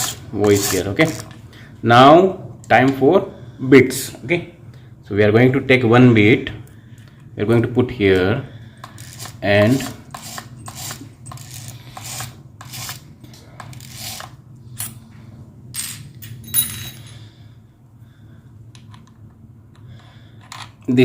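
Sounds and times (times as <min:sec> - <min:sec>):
drill bits clinking and rattling: 0:00.0 - 0:01.4, 0:08.8 - 0:13.0, 0:13.6 - 0:14.3.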